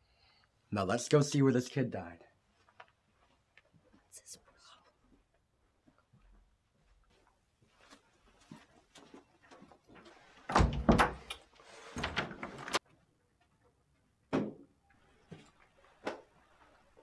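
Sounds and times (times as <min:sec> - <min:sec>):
door thudding and rattling: 0:10.5 - 0:11.3.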